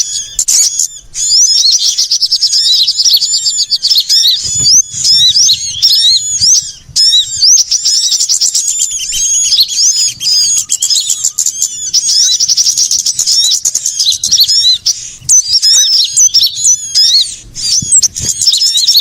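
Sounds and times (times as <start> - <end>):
small songbirds chirping: 0.0 - 19.0.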